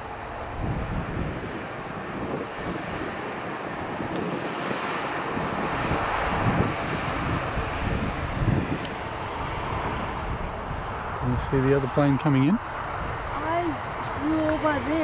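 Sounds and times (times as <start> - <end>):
airliner engines rushing: 0.0 - 15.0
wind buffeting microphone: 0.0 - 15.0.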